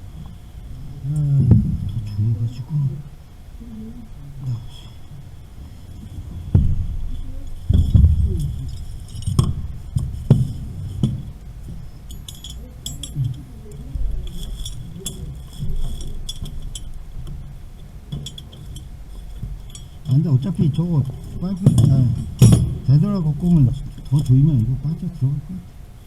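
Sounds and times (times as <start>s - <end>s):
heavy metal knocks: 6.2s - 13.2s, 14.0s - 24.6s
metal tools clinking and jangling: 7.8s - 17.0s, 18.1s - 23.0s.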